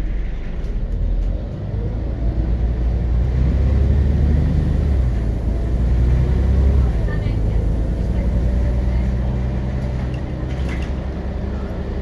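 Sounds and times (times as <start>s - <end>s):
bus diesel engine rumble: 0.0s - 12.0s.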